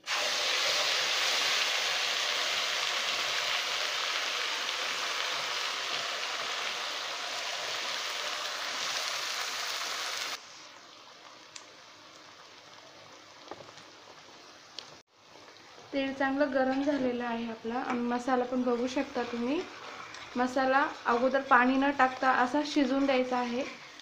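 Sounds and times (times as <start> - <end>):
paste sizzling in hot oil: 0.0 - 10.8, 16.4 - 24.0.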